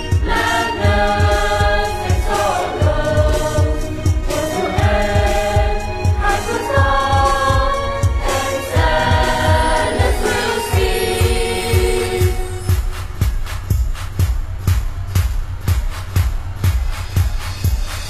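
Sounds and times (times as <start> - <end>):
choir singing long notes: 0.0 - 12.8
steady drumbeat: 0.0 - 18.0.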